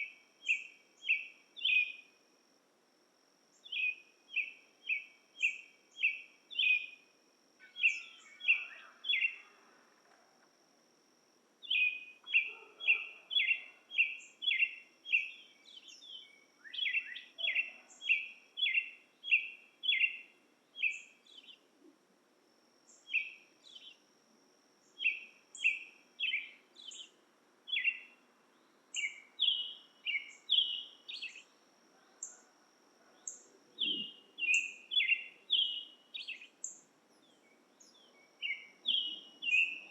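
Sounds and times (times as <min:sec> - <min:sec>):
repeated chirping calls: 0:07.6 - 0:09.4, 0:11.6 - 0:21.6, 0:29.0 - 0:31.5, 0:33.3 - 0:36.7, 0:38.3 - 0:39.9.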